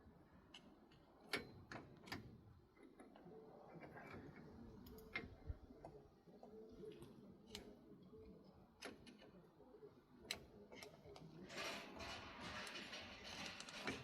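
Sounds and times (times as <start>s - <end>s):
faint clicks and light knocks: 0.5s - 9.5s.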